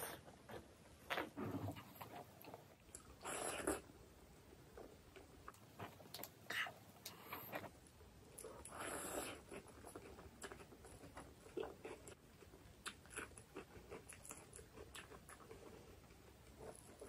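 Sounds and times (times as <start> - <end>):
wet chewing mouth sounds: 8.4 - 17.0.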